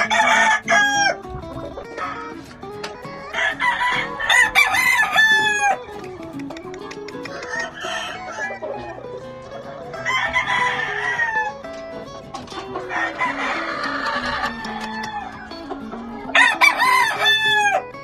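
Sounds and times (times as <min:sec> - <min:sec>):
roosters crowing: 0:00.0 - 0:01.2, 0:03.3 - 0:05.8, 0:07.3 - 0:09.0, 0:09.8 - 0:11.6, 0:12.7 - 0:17.9
background music: 0:00.0 - 0:18.0
chickens clucking: 0:00.0 - 0:18.0.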